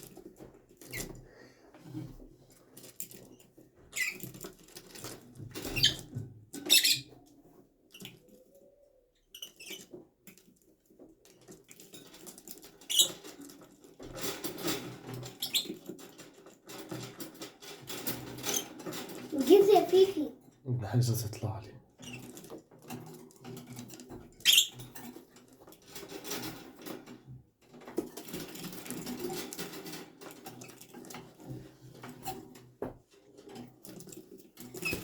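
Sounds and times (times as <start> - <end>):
birds scratching and rustling: 0.0 - 20.4, 22.0 - 35.0
bird squeaks: 5.7 - 6.0, 6.7 - 7.1, 15.4 - 15.7, 24.4 - 24.8.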